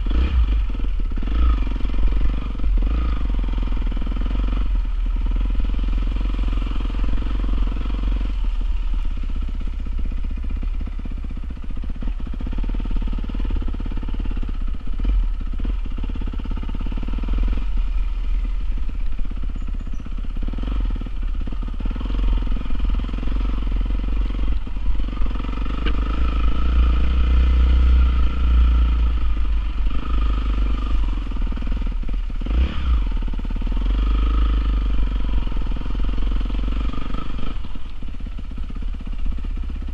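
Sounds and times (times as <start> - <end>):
dirt bike engine revving: 0.0 - 8.6, 19.5 - 37.8.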